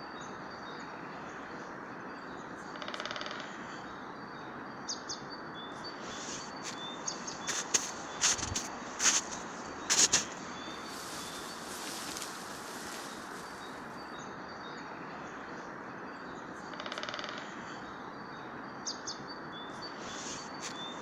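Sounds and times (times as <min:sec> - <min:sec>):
small birds chirping: 0:05.0 - 0:14.2, 0:19.6 - 0:21.0
background hiss: 0:05.8 - 0:14.1, 0:20.0 - 0:21.0.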